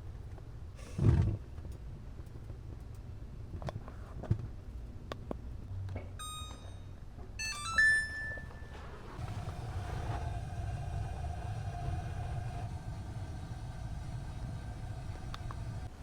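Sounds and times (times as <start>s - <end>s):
steady hum with low rumble: 0.0s - 16.0s
electronic beeps: 6.2s - 8.8s.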